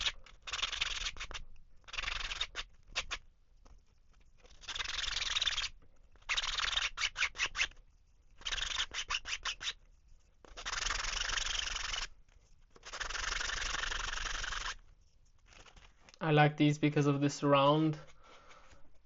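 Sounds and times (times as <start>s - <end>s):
sanding block rubbing plastic: 4.4s - 7.8s, 8.4s - 12.1s, 12.8s - 14.8s.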